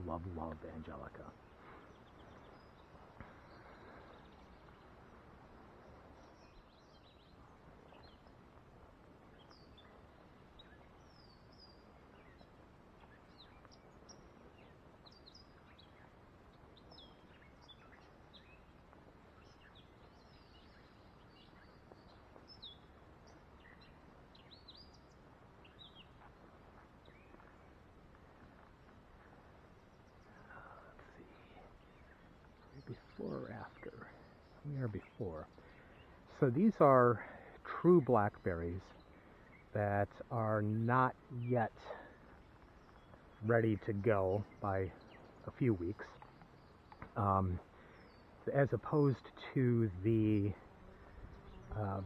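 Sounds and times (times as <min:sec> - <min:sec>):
birdsong chirps: 0:00.0 - 0:52.0
steady outdoor hiss: 0:00.0 - 0:52.0.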